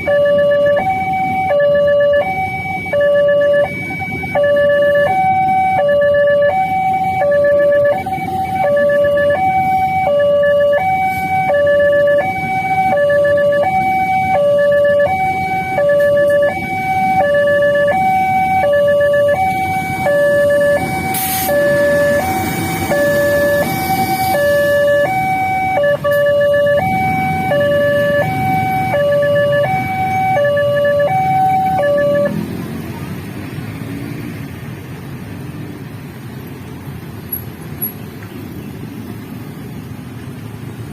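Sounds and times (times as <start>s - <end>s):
two-tone crossing alarm: 0.0s - 32.4s.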